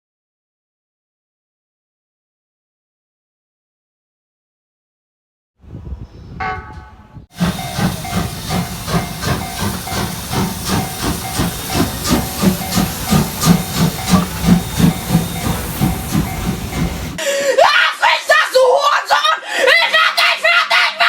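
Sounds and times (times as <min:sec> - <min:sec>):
steam locomotive chuffing: 0:07.3 - 0:17.2
steady steam hiss: 0:07.4 - 0:17.2.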